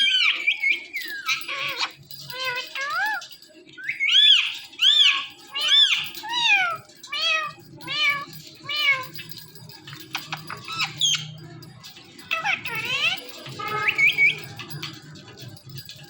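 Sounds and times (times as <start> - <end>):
parrot squawks and chirps: 0.0 - 9.1, 10.1 - 11.4, 12.2 - 14.6.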